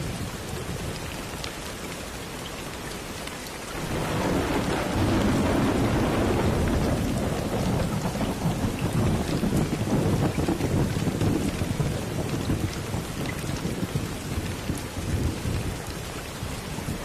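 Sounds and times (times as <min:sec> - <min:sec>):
steady rain: 0:00.0 - 0:17.0
thunder rumbling: 0:03.8 - 0:17.0.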